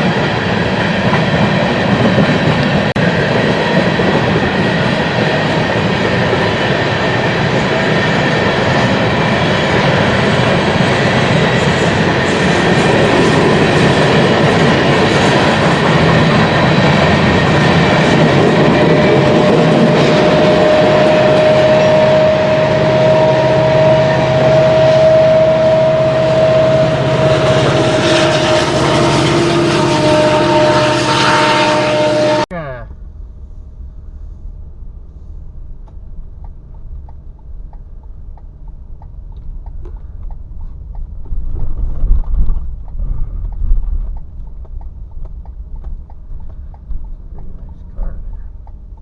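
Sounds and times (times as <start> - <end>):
freight train rolling past: 0.0 - 35.4
steady whine: 0.0 - 36.3.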